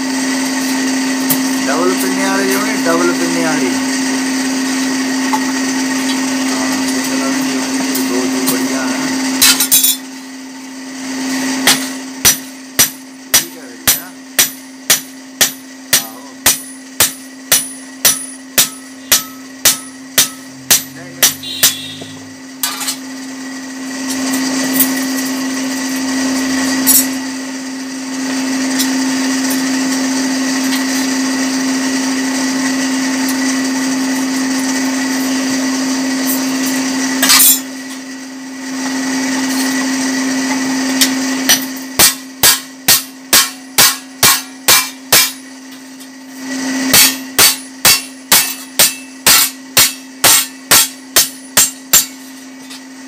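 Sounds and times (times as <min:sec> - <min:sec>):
electric blower humming: 0:20.4 - 0:33.8.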